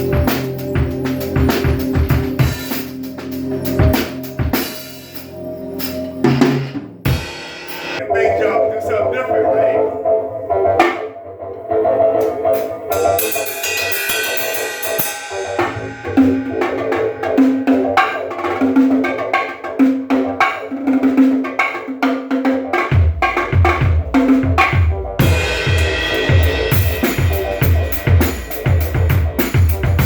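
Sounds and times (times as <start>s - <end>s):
heavy bass drum strokes: 0.0s - 5.0s, 23.0s - 30.0s
cymbal wash: 12.9s - 18.9s.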